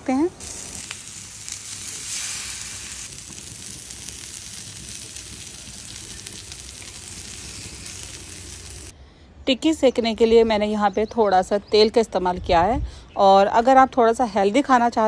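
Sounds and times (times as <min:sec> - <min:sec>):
patties sizzling in oil: 0:00.1 - 0:08.9.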